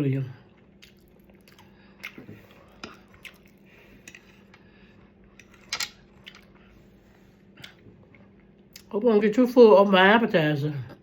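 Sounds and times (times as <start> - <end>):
low steady hum: 0.0 - 11.0
wet chewing and mouth smacks: 0.5 - 4.6.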